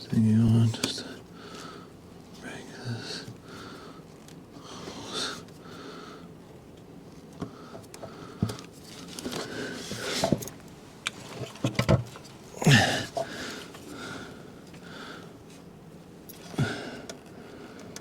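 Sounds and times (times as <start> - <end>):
soft breathing: 1.2 - 6.4, 12.6 - 15.7.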